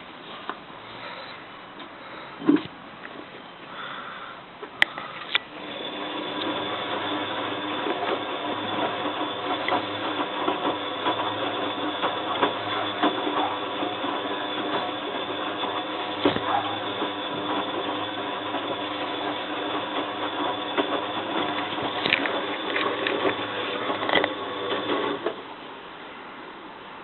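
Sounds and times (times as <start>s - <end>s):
washing machine whirring: 5.5s - 25.6s.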